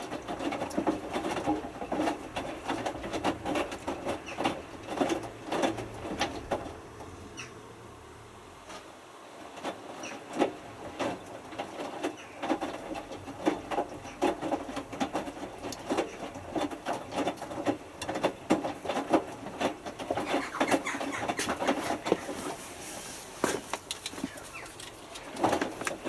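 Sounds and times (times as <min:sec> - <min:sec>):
irregular clicks and knocks: 0:00.0 - 0:06.8, 0:08.7 - 0:22.4, 0:23.5 - 0:26.0
washing machine drum tumbling: 0:00.0 - 0:07.3, 0:08.6 - 0:22.7, 0:24.2 - 0:26.0.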